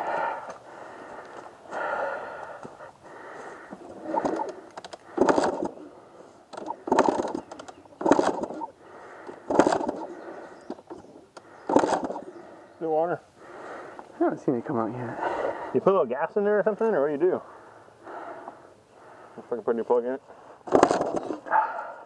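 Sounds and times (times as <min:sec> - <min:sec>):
dirt bike kickstarter kicked: 0:04.2 - 0:05.8, 0:06.6 - 0:08.7, 0:09.5 - 0:10.1, 0:11.7 - 0:12.2, 0:20.7 - 0:21.4.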